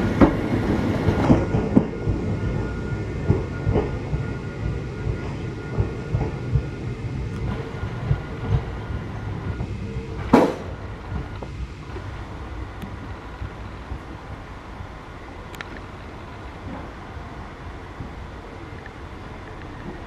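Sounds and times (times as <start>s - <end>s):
train wheels knocking on rails: 0.0s - 11.6s.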